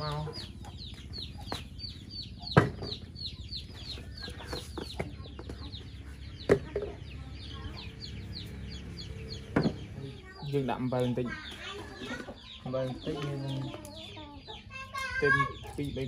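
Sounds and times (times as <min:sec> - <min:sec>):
birds peeping: 0:00.0 - 0:16.0
sharp knocks: 0:09.5 - 0:09.9.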